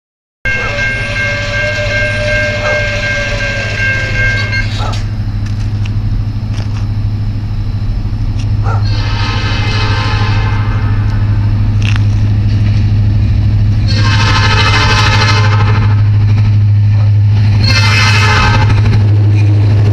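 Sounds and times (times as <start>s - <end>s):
locomotive air horn: 0.5s - 5.2s, 8.6s - 12.6s, 13.7s - 16.3s, 17.4s - 19.9s
train rumble: 0.5s - 19.9s.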